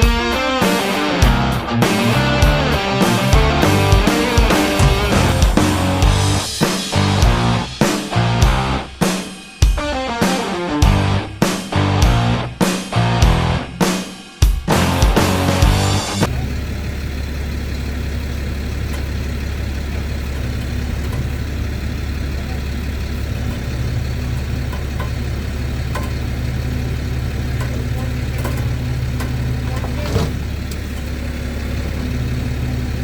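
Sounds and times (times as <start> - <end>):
vehicle engine idling: 1.9 - 7.8, 14.8 - 33.0.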